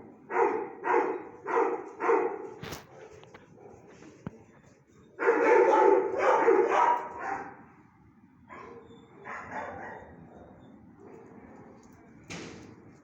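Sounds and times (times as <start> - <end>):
dog barking: 0.2 - 4.0, 5.2 - 7.6, 8.5 - 10.6.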